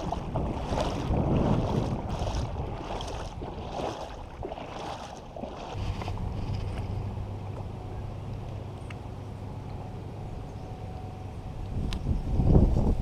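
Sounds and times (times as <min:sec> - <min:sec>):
wind buffeting microphone: 0:00.0 - 0:07.0, 0:11.5 - 0:13.0.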